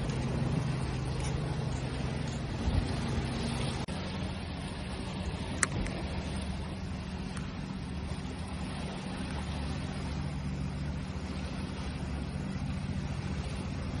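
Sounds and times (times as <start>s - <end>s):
low rumble and hum: 0.0s - 14.0s
sea waves washing: 0.0s - 14.0s.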